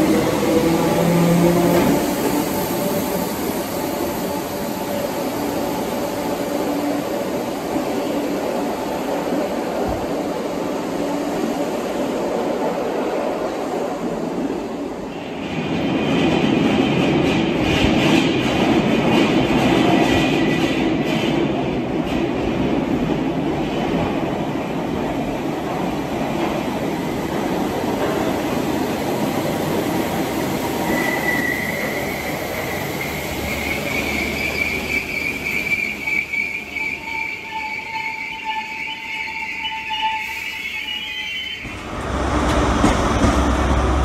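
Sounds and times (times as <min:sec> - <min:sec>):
train rumbling: 0:00.0 - 0:40.3, 0:41.6 - 0:44.0
high wheel squeal: 0:30.8 - 0:41.8
rapid clicking over rails: 0:41.7 - 0:44.0.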